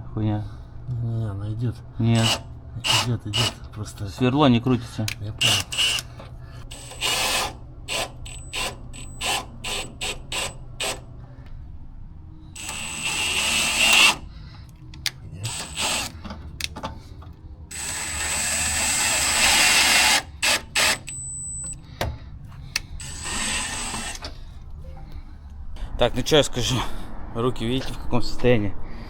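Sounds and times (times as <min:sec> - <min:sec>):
power tool running: 0:02.1 - 0:04.0, 0:05.1 - 0:11.1, 0:12.6 - 0:14.4, 0:15.4 - 0:16.8, 0:17.7 - 0:24.4
ratchet strokes: 0:02.2 - 0:03.7, 0:05.4 - 0:11.0, 0:12.6 - 0:14.3, 0:15.5 - 0:16.2, 0:17.7 - 0:21.2, 0:23.0 - 0:24.3.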